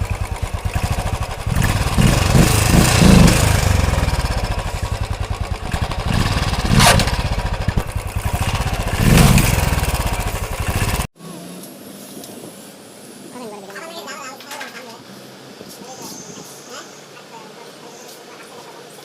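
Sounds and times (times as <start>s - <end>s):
motorcycle engine throttle blips: 0.0s - 11.1s.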